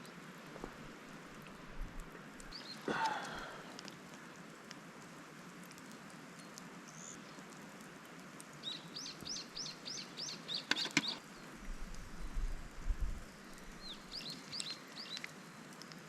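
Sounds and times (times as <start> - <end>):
faint steady hiss: 0.0 - 16.0
small bird calling: 8.7 - 11.5.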